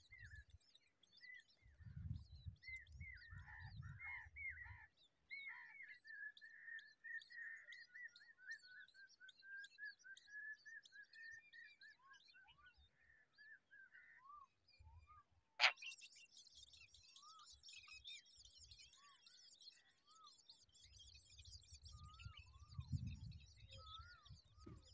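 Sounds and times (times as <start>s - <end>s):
birds chirping: 14.8s - 24.9s.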